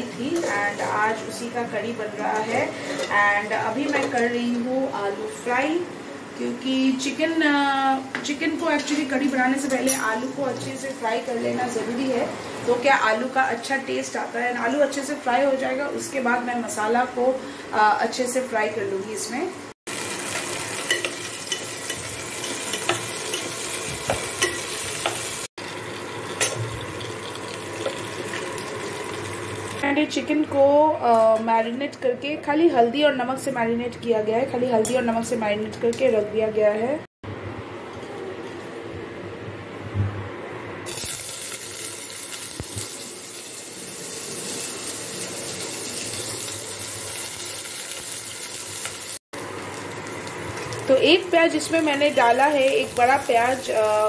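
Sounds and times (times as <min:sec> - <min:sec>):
potatoes sizzling in oil: 0:18.1 - 0:29.8, 0:40.9 - 0:54.0.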